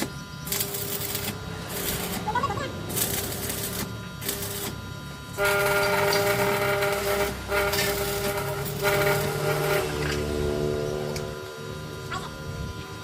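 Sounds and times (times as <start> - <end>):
train horn blasts: 5.4 - 10.8.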